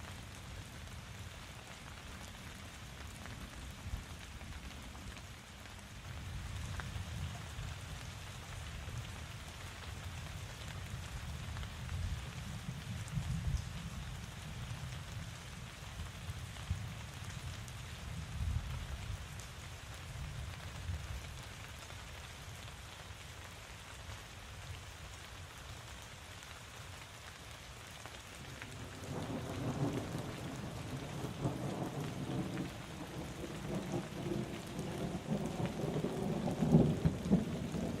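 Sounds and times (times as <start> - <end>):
steady rain falling: 0.0 - 38.0
rumbling thunder: 29.0 - 38.0.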